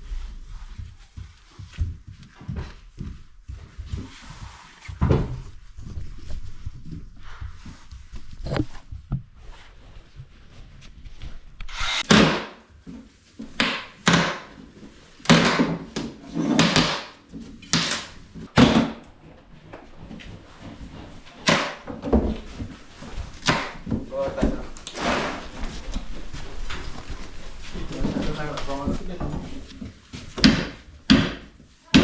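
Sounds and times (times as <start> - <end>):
scraping strokes: 9.4 - 12.1, 24.7 - 28.8.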